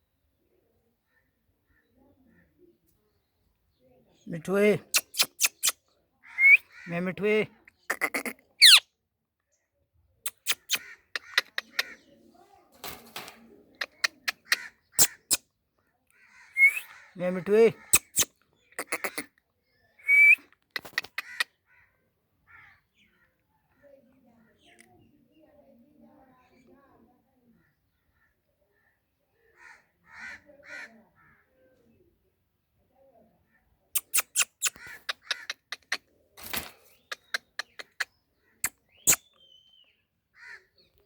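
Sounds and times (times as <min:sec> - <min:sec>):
parrot whistle: 0:06.4 - 0:06.6, 0:16.6 - 0:16.9, 0:20.1 - 0:20.4
parrot squawk: 0:07.9 - 0:08.8, 0:10.3 - 0:12.0, 0:17.8 - 0:19.3, 0:34.0 - 0:35.9.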